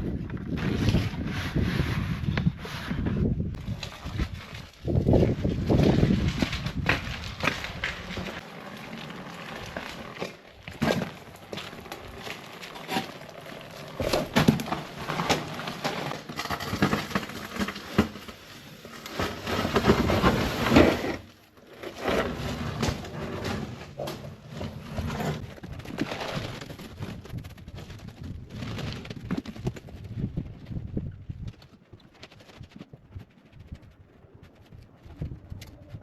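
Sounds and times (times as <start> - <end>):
shovel scraping sand: 0.5 - 3.2, 18.3 - 25.4.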